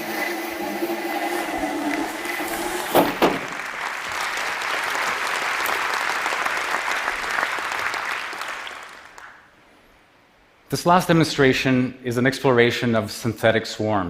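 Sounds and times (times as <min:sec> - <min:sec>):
audience applauding: 0:01.3 - 0:09.5
sharp knocks: 0:02.6 - 0:03.6.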